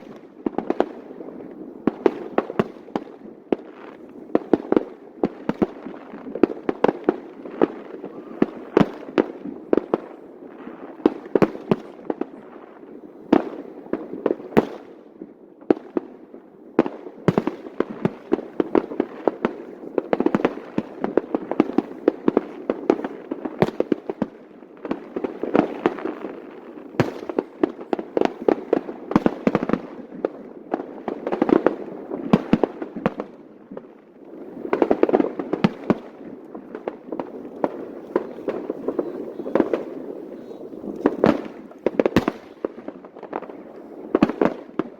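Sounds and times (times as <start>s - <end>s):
fireworks crackle: 0.0s - 15.0s, 15.7s - 44.9s
fireworks bangs: 16.8s - 44.9s.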